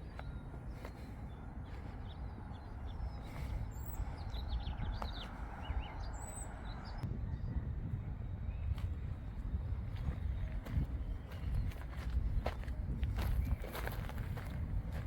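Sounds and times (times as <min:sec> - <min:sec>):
small birds chirping: 0:00.0 - 0:07.0, 0:09.9 - 0:14.4.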